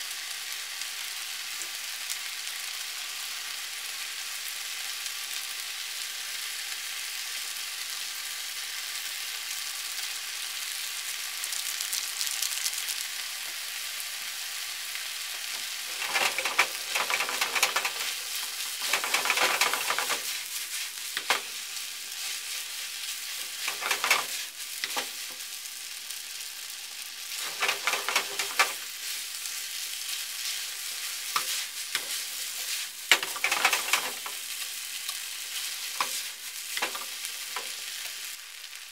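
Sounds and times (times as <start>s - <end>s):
food sizzling in a frying pan: 0.0s - 38.9s
food stirred with crackling and scraping: 15.2s - 38.9s.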